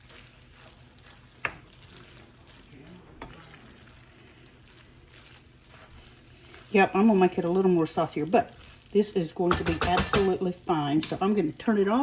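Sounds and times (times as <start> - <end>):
food faintly sizzling in skillet: 0.0 - 12.0
utensil clicking against pan: 9.5 - 11.2.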